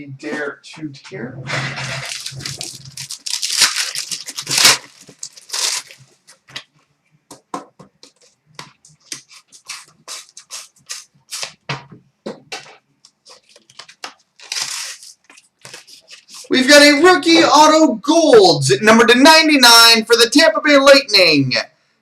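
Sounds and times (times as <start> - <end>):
card pack wrappers tearing: 1.8 - 6.5, 9.0 - 11.6, 13.3 - 16.5.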